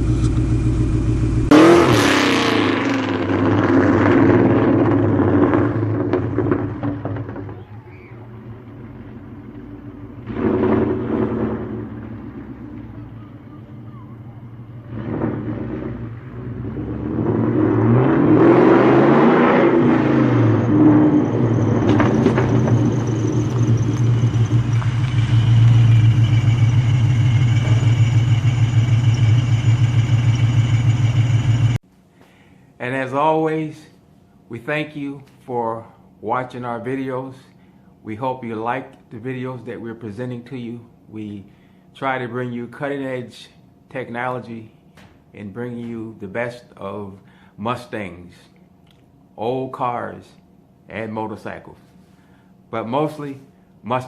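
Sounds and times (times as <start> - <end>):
car engine running loud: 0.0 - 31.8.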